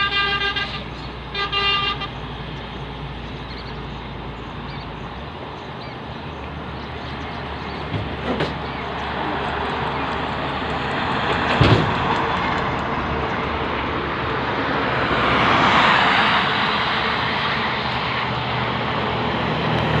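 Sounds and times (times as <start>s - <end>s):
highway traffic: 0.0s - 20.0s
vehicle passing close: 6.6s - 20.0s.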